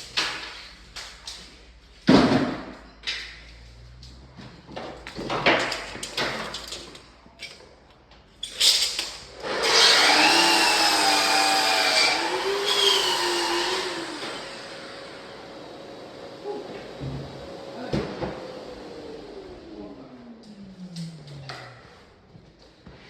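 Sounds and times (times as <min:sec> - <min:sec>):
power tool motor running: 0:09.4 - 0:16.1.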